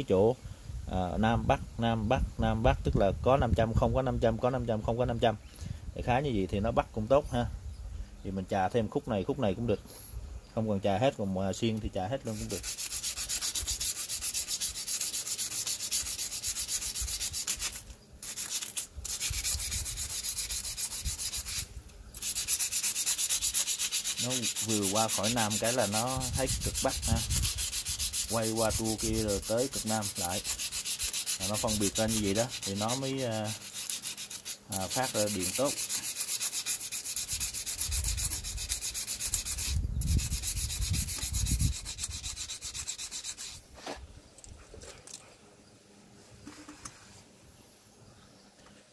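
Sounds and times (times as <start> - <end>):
scrubbing rust off metal: 12.2 - 44.0.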